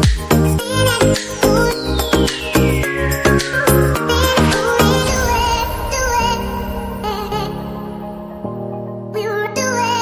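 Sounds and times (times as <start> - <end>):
electronic dance music beat: 0.0 - 7.9
deep synth bass: 0.0 - 8.6
synth sweep gliding downward: 1.6 - 9.0.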